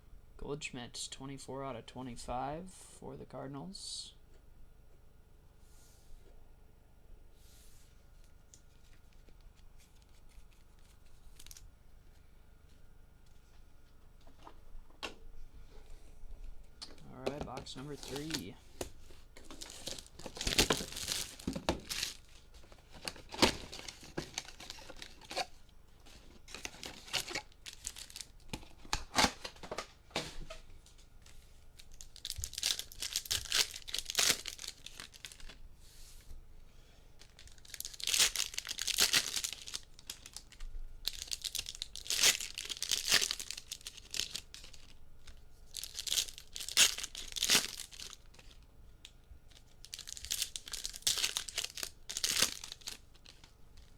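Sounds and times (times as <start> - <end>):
wrappers torn and crinkled: 8.6 - 11.7, 17.0 - 18.5, 19.4 - 29.6, 31.2 - 35.6, 37.2 - 53.9
foil tearing: 17.8 - 18.4, 19.4 - 25.5, 32.0 - 35.6, 37.4 - 44.9, 45.7 - 48.6, 49.8 - 53.9.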